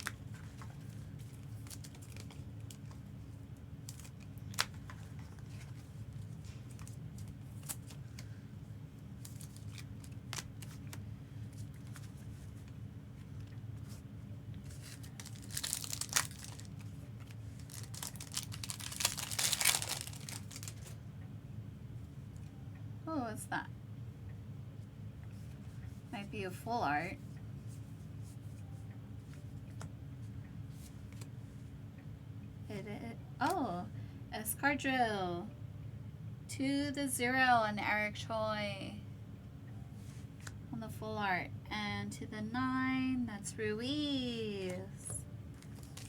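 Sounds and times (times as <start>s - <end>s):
foil wrapper tearing and crinkling: 0.0s - 0.6s, 1.3s - 2.9s, 3.8s - 5.6s, 9.2s - 11.0s, 14.7s - 20.9s, 45.6s - 46.0s.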